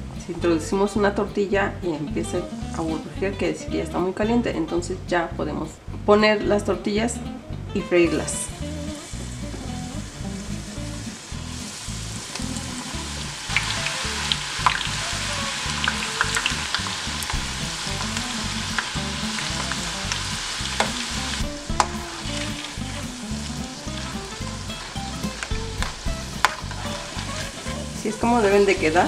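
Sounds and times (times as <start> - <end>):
food sizzling in hot oil: 8.4 - 29.0.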